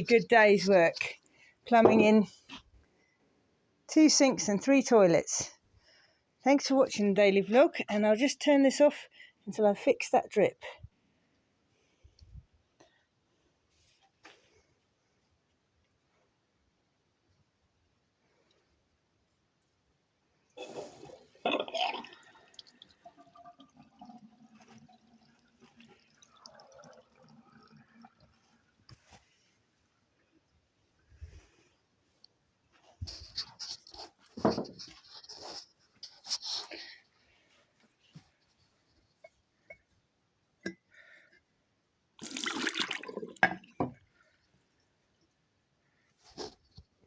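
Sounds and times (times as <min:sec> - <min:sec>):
water rushing through plumbing: 0:21.7 - 0:29.0, 0:42.2 - 0:44.0
water splash: 0:42.2 - 0:43.6.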